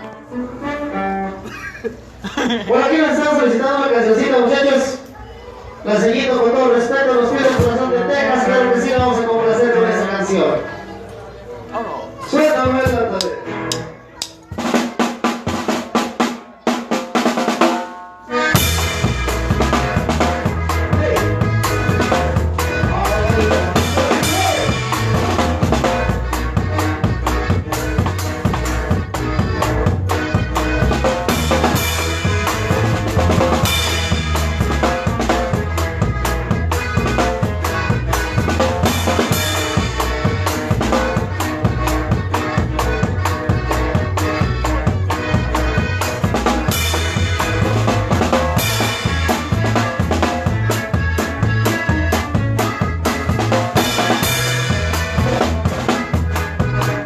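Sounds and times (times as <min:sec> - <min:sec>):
live band playing: 0:00.0 - 0:57.0
drum kit beat: 0:12.5 - 0:57.0
drum hits on snare and cymbals: 0:14.6 - 0:18.0, 0:18.6 - 0:26.2.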